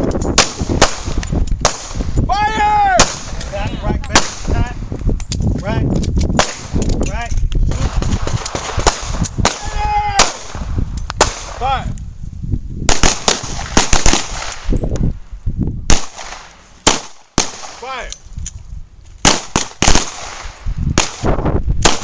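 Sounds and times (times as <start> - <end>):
pistol shots: 4.1 - 4.5, 6.4 - 6.8, 7.7 - 10.6, 11.2 - 11.7, 12.9 - 14.8, 15.9 - 17.9, 19.2 - 22.0.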